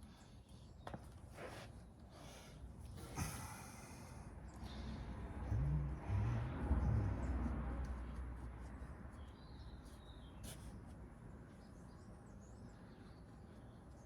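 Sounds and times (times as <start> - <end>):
faint birds chirping: 8.4 - 14.0.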